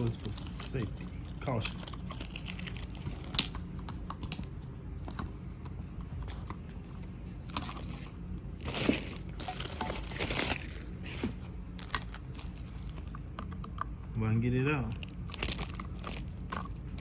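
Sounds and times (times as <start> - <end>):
packaging rustling: 0.0 - 3.9, 7.4 - 13.3, 14.8 - 17.0.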